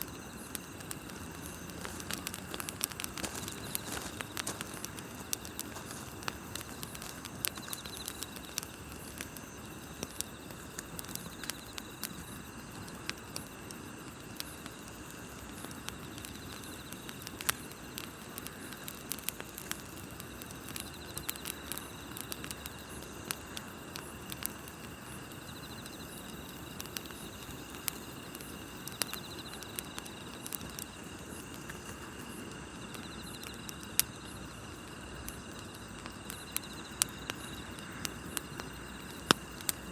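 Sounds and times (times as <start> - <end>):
campfire crackling and popping: 0.0 - 39.9
crickets chirping: 0.0 - 39.9
insect trill: 0.0 - 39.9.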